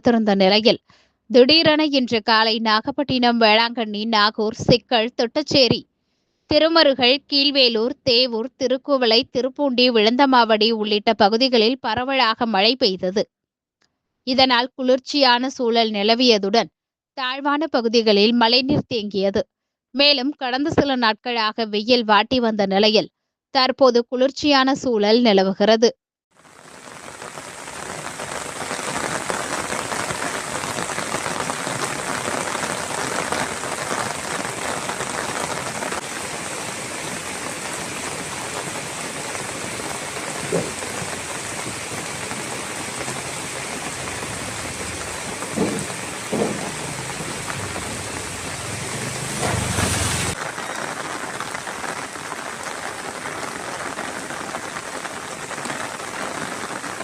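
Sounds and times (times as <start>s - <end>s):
heavy rain splashing: 26.4s - 57.0s.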